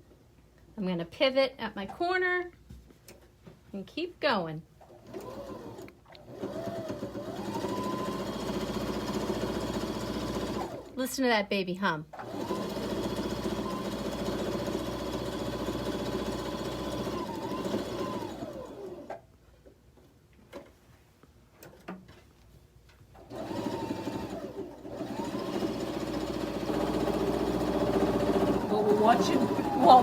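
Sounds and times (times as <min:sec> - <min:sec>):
sewing machine humming: 0:04.9 - 0:10.9, 0:12.2 - 0:19.1, 0:23.2 - 0:30.0.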